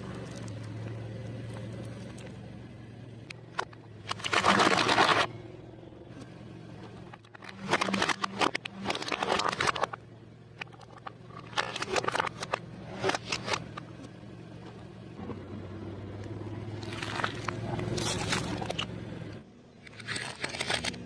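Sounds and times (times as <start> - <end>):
car engine hum: 0.0 - 21.0
tyres crunching and squashing food: 3.3 - 5.4, 7.1 - 10.0, 10.6 - 13.8, 16.7 - 18.9, 19.8 - 21.0.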